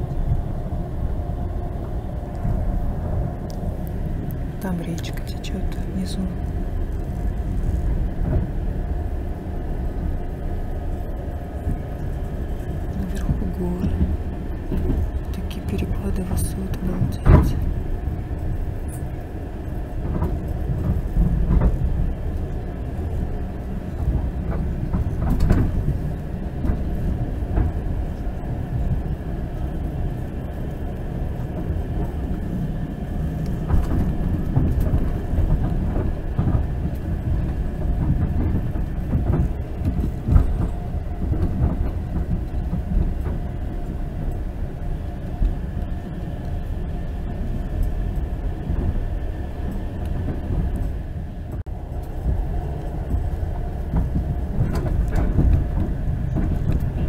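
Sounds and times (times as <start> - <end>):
train wheels rumbling on rails: 0.0 - 57.0
track clicks and knocks: 12.8 - 17.8, 23.9 - 28.3, 33.4 - 44.5, 49.6 - 57.0.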